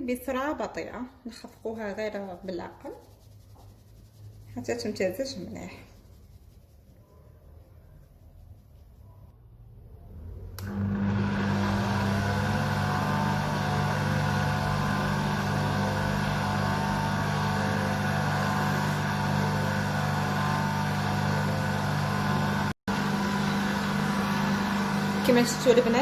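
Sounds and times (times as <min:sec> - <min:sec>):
electric stand mixer running: 0:10.6 - 0:26.0.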